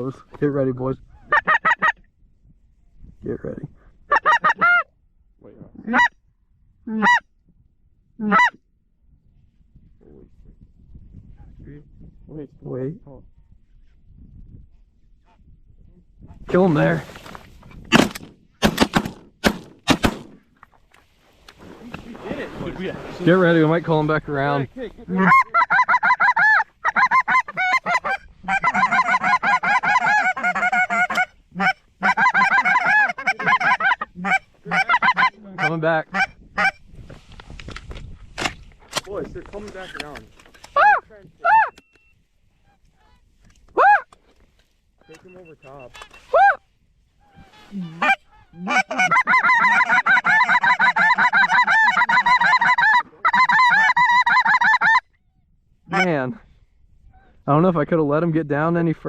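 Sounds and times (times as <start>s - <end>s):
goose call honks: 8.2s - 8.6s, 25.1s - 36.8s, 47.2s - 55.0s.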